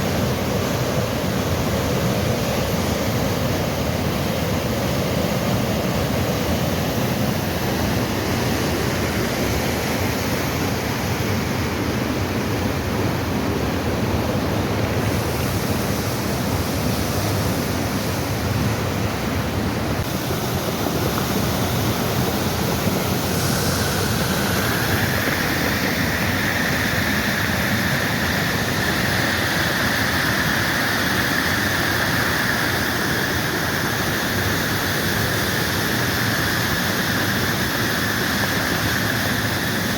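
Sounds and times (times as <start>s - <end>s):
heavy rain pouring: 14.0s - 39.9s.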